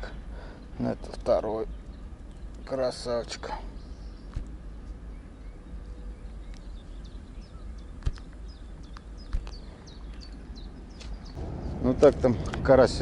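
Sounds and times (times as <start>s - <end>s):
small bird chirping: 0.4s - 11.8s
low rumble: 10.6s - 13.0s.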